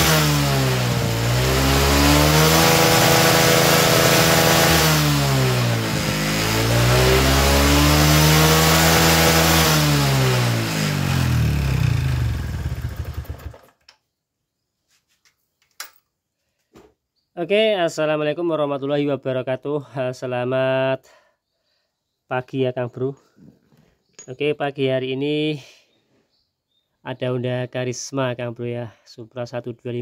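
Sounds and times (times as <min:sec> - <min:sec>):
motorcycle engine revving: 0:00.0 - 0:13.7.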